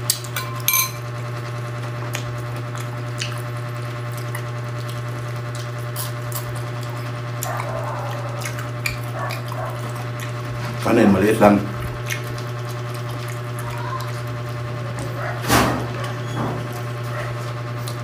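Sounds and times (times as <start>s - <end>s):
steady low hum: 0.0s - 18.0s
spoon tapping ceramic bowl: 0.4s - 1.0s
chewing and mouth clicks: 1.9s - 18.0s.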